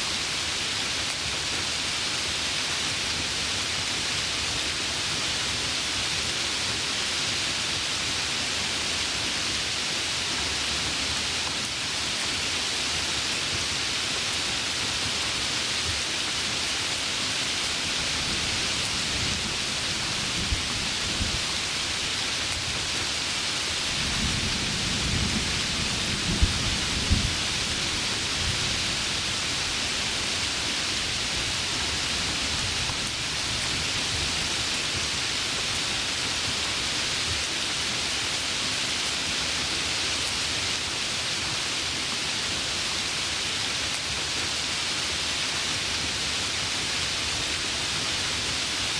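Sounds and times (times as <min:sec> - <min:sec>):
heavy rain hissing: 0:00.0 - 0:48.9
thunder rumbling and cracking: 0:24.0 - 0:28.8.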